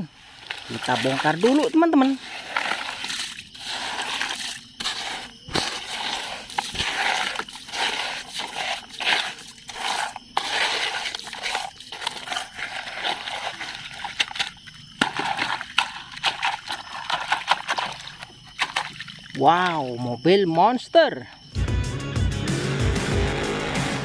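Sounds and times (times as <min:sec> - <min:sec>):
sand scraping and rustling: 0:00.0 - 0:17.8.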